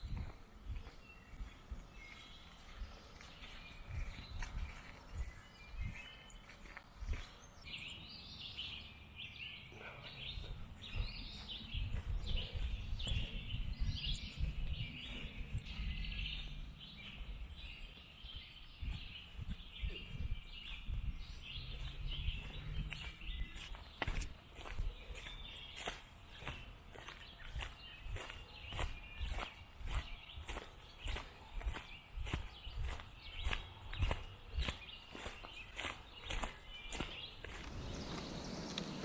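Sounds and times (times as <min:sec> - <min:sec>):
birds singing and chirping: 0:00.0 - 0:39.0
low uneven rumble: 0:37.7 - 0:39.0.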